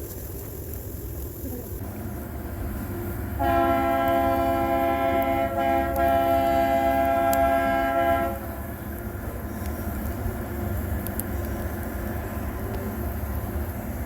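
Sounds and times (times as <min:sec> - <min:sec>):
locomotive horn blast: 0:03.4 - 0:08.5.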